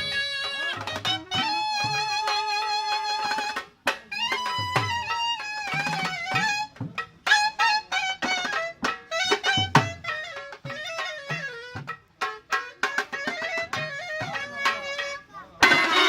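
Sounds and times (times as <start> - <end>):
drum strikes: 0.0 - 16.0
wind instrument melody: 0.0 - 16.0.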